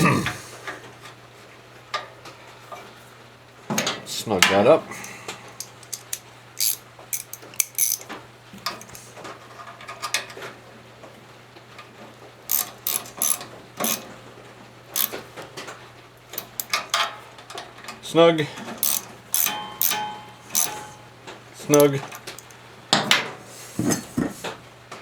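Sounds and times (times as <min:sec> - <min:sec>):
ratchet wrench clicking: 0:05.6 - 0:08.1, 0:08.7 - 0:09.0, 0:12.5 - 0:14.1, 0:15.0 - 0:15.2, 0:16.4 - 0:17.1, 0:18.8 - 0:21.0, 0:21.7 - 0:22.6.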